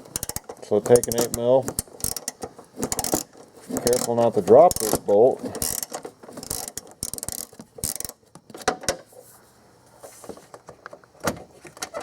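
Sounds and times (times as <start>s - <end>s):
socket ratchet clicking: 0.0s - 3.3s, 4.7s - 5.0s, 5.6s - 8.2s.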